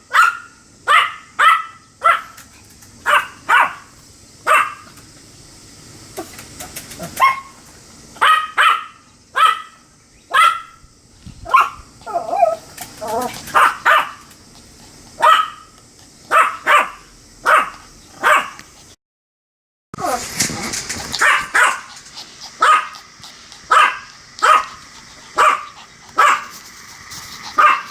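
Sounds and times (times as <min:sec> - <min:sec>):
small dog barking: 0:00.0 - 0:02.4, 0:03.0 - 0:04.9, 0:07.0 - 0:10.8, 0:11.4 - 0:14.3, 0:15.2 - 0:18.6, 0:21.1 - 0:26.6, 0:27.5 - 0:27.9.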